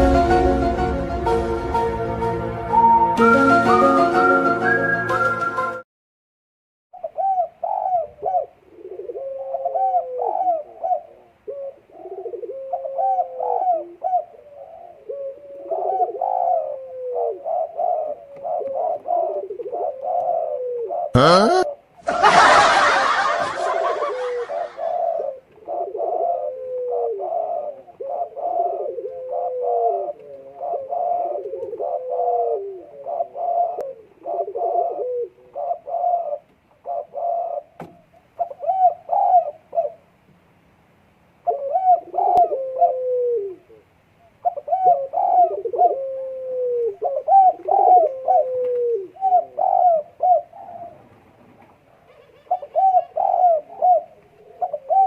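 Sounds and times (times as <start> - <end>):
dove cooing: 7.0 - 21.4, 23.0 - 37.8, 38.4 - 40.0, 41.4 - 51.1, 52.1 - 55.0.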